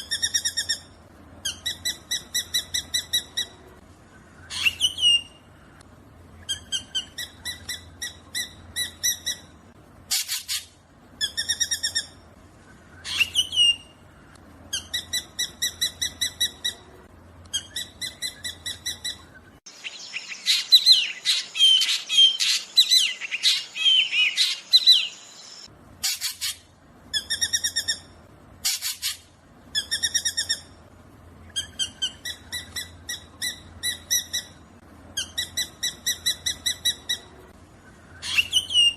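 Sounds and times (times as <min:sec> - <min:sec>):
bird calling repeated notes: 0:14.7 - 0:26.6.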